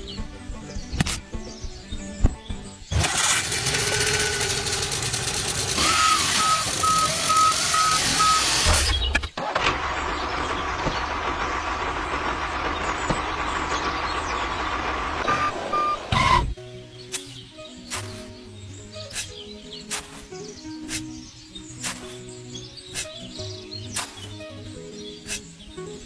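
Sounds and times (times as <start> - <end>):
heavy vehicle engine running: 2.8 - 16.6
steady engine noise: 2.9 - 16.6
reversing alarm beeping: 5.8 - 9.0, 15.2 - 16.5.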